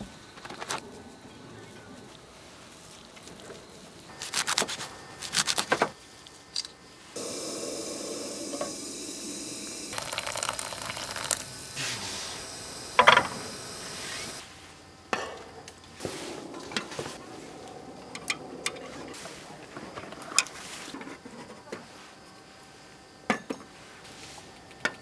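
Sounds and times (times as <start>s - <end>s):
food sizzling in a pan: 7.2s - 14.4s
cooking utensils clattering: 9.7s - 14.4s.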